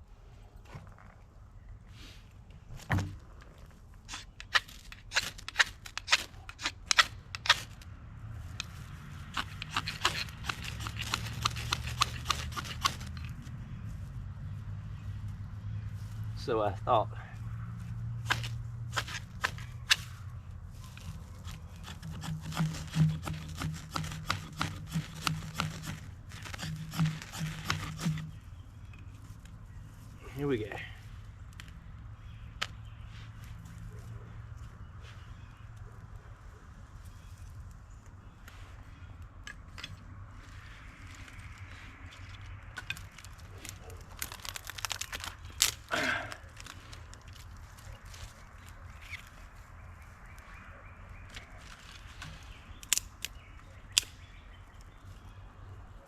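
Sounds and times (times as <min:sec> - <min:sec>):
campfire crackling and snapping: 0:08.5 - 0:13.4, 0:42.8 - 0:49.4
ferro rod scrapes: 0:20.9 - 0:28.4.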